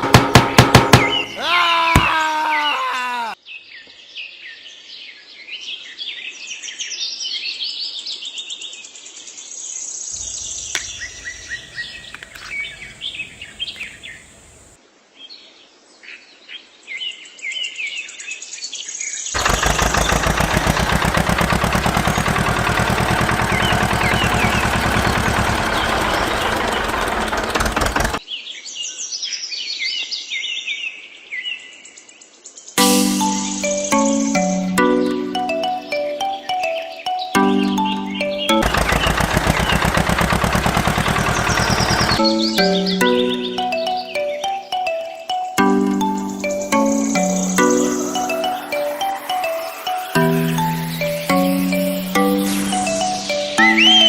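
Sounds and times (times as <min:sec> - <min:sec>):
birds chirping and singing: 0:00.3 - 0:03.4, 0:10.1 - 0:14.7, 0:19.4 - 0:28.2, 0:32.7 - 0:54.0
fast-pulsing mechanical noise: 0:19.4 - 0:28.2, 0:38.6 - 0:42.2, 0:47.6 - 0:54.0.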